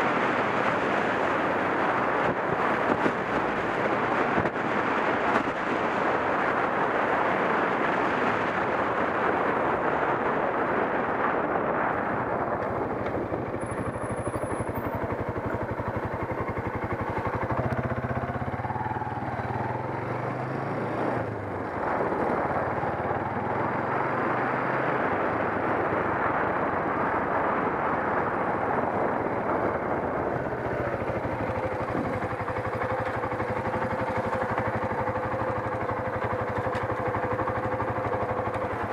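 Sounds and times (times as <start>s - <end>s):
wind rush: 0.0s - 38.9s
motorcycle engine running: 12.4s - 26.2s, 28.2s - 38.9s.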